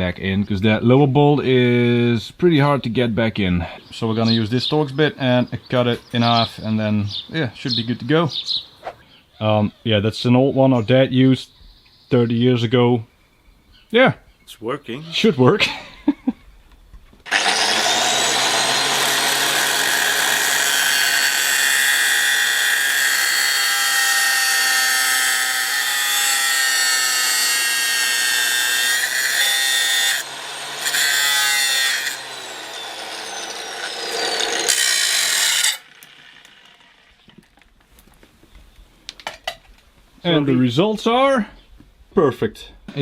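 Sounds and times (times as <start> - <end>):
power tool grinding metal: 17.3 - 37.4.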